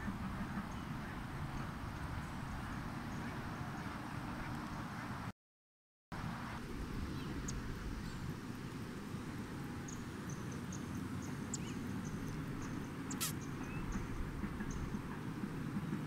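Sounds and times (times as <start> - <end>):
small bird chirping: 9.9 - 14.9
sharp click: 13.1 - 13.4.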